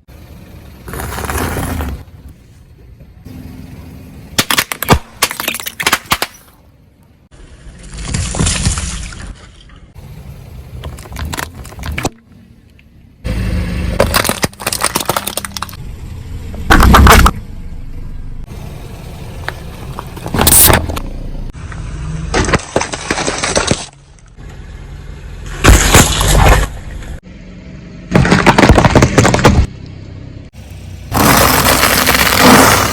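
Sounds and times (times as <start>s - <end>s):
objects crunching under car wheels: 0.6s - 3.2s, 4.3s - 6.7s, 10.6s - 12.9s, 13.8s - 15.8s, 16.6s - 17.4s, 19.4s - 24.6s, 25.4s - 27.2s, 28.1s - 30.0s, 31.1s - 32.9s.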